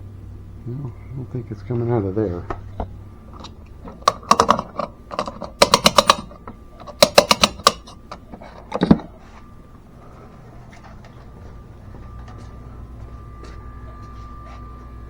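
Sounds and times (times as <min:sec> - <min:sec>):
sharp clicks and clatter: 0:03.4 - 0:09.0.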